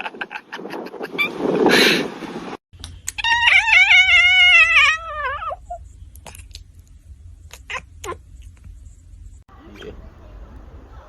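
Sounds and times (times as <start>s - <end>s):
low steady hum: 2.8s - 11.0s.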